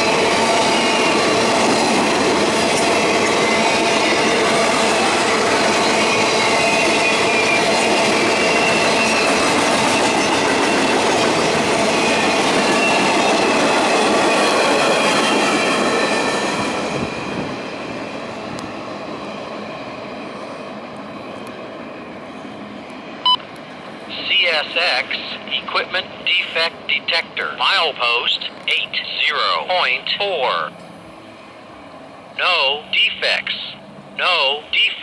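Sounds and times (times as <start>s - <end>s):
train wheels on rails: 0.0s - 35.0s.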